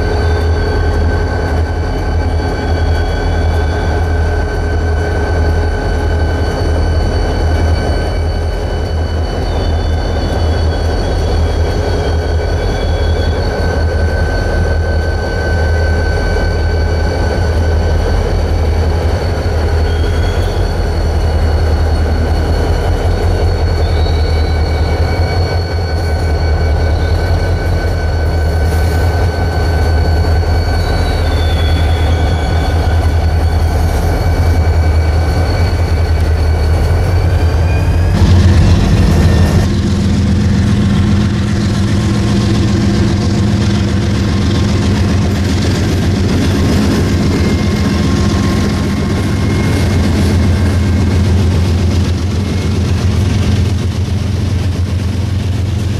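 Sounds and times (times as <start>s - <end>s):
freight train rumbling on rails: 0.0s - 55.9s
high-pitched wheel squeal: 0.0s - 55.9s.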